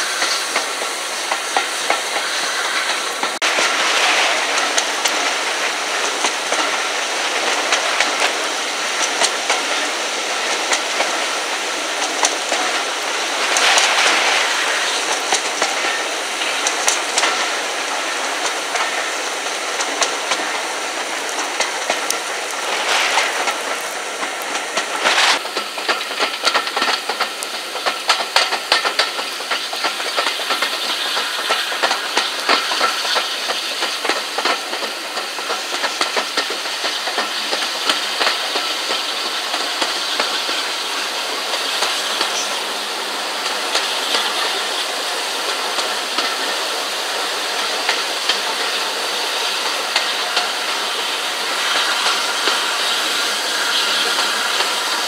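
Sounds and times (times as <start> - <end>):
wheels clicking over rail joints: 0.0 - 55.0
wind and train running noise: 0.0 - 55.0.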